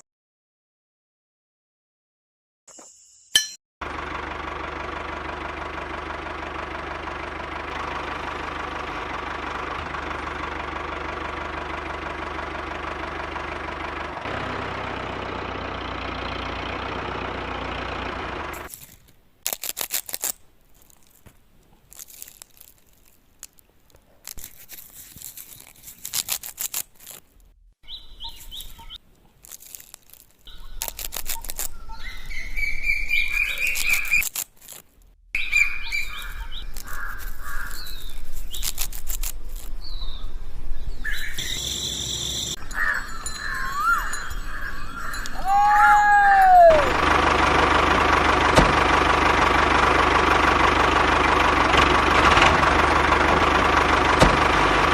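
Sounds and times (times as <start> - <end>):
high bird chirps: 27.8 - 29.0, 30.4 - 34.3, 35.4 - 38.8, 39.5 - 46.8.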